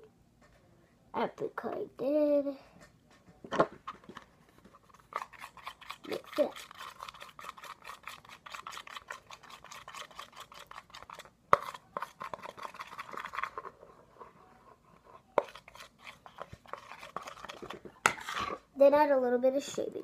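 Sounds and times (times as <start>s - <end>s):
spoon scraping bowl: 3.8s - 18.7s.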